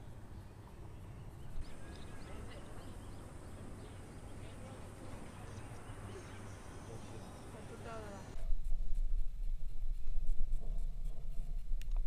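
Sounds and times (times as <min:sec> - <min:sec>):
bird chirping: 0:00.0 - 0:08.4.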